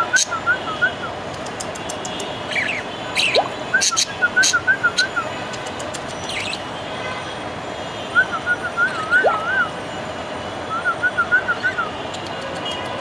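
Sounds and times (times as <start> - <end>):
budgerigar chirping: 2.5 - 5.2, 6.1 - 6.6.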